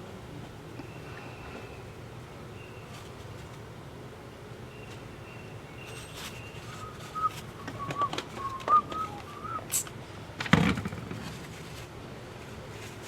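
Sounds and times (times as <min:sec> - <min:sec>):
person whistling short notes: 0:06.8 - 0:09.8.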